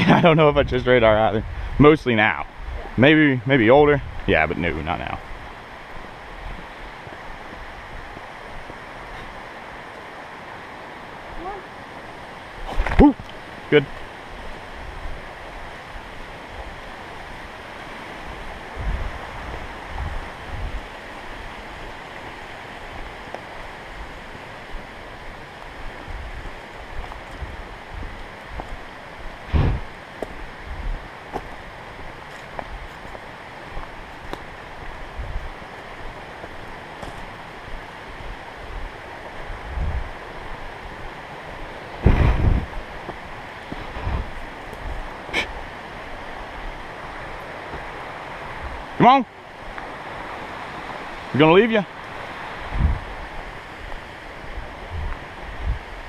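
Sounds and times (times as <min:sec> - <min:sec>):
creek water over rocks: 0:00.0 - 0:56.0.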